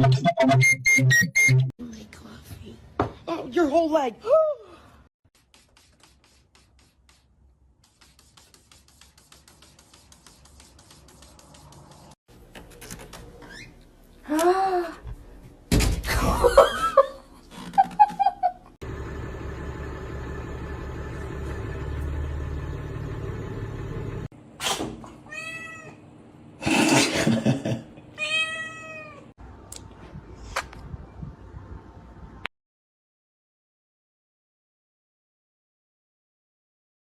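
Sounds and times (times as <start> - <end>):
cats meowing: 28.2 - 29.3.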